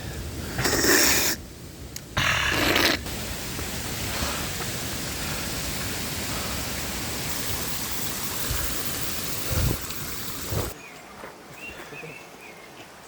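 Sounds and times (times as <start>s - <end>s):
falling water rushing: 2.2s - 10.8s.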